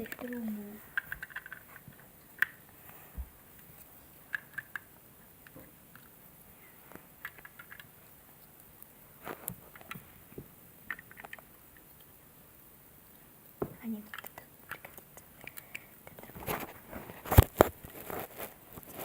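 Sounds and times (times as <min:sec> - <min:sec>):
plastic bricks clicking: 0:00.0 - 0:02.6, 0:04.3 - 0:06.1, 0:07.2 - 0:07.9, 0:10.9 - 0:11.5, 0:14.0 - 0:15.8.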